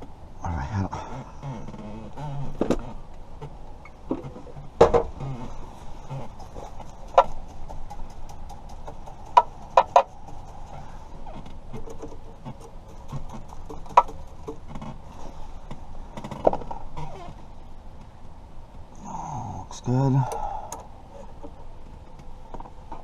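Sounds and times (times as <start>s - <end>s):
small hard objects clicking: 6.3s - 10.7s, 11.7s - 14.7s.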